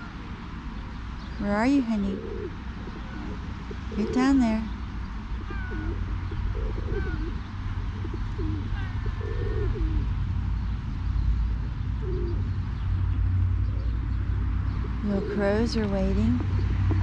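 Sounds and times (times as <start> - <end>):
pigeons cooing: 1.8 - 10.1, 12.0 - 12.6, 14.8 - 17.0.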